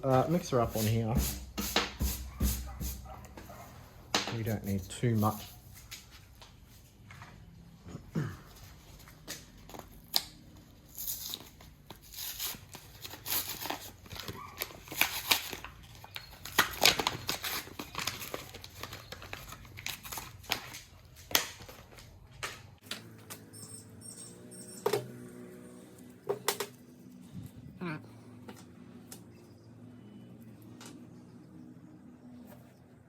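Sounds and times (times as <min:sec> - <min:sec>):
packaging crinkling and tearing: 0:09.3 - 0:22.2.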